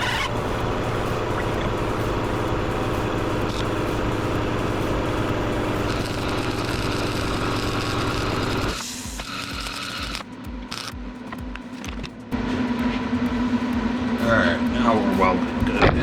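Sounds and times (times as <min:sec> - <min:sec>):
welding arc crackling and buzzing: 0:00.0 - 0:12.1.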